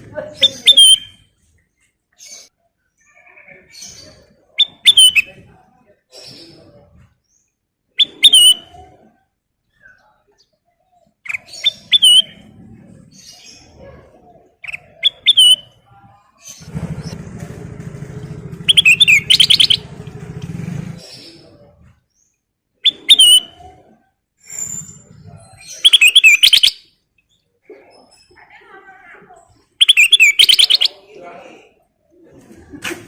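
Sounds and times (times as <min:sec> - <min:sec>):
bird chirping and trilling: 0:00.2 - 0:01.3, 0:02.2 - 0:05.6, 0:06.2 - 0:08.9, 0:09.7 - 0:13.8, 0:14.5 - 0:15.8, 0:18.6 - 0:20.0, 0:21.0 - 0:28.4, 0:29.8 - 0:31.2
low hum: 0:16.6 - 0:21.0.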